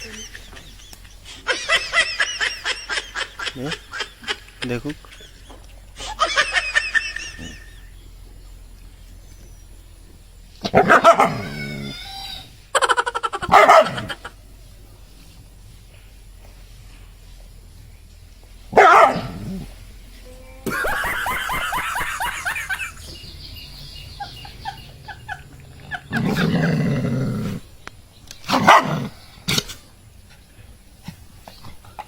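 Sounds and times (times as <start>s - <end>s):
dog barking: 10.7s - 11.6s, 13.4s - 14.2s, 18.7s - 19.5s, 28.5s - 29.2s.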